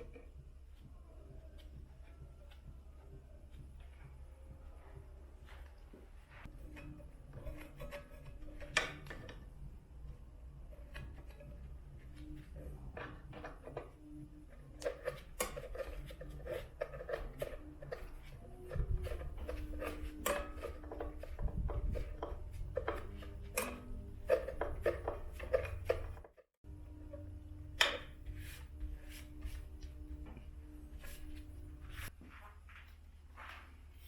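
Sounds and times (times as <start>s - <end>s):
hard parts clicking and knocking: 0.0s - 0.9s, 6.4s - 29.2s
low steady hum: 0.0s - 34.0s.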